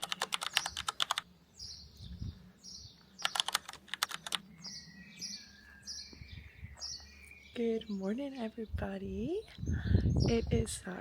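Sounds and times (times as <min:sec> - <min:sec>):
rapid clicking: 0:00.0 - 0:01.3, 0:03.2 - 0:04.4
birds chirping: 0:00.0 - 0:11.0.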